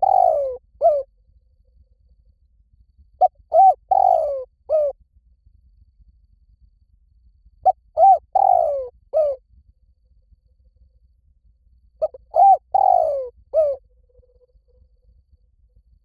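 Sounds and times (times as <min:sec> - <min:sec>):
dove cooing: 0:00.0 - 0:01.1, 0:03.2 - 0:05.0, 0:07.6 - 0:09.4, 0:12.0 - 0:13.8.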